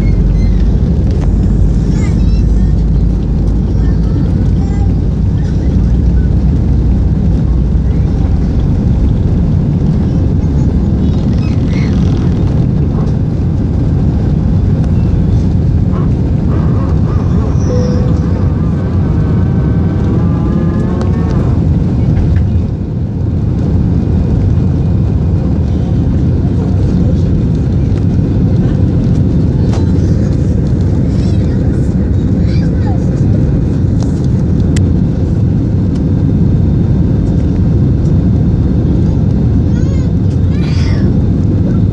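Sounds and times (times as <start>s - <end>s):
rushing air: 0.0s - 32.4s
jet engines rumbling: 0.0s - 41.9s
faint voice: 25.8s - 33.4s.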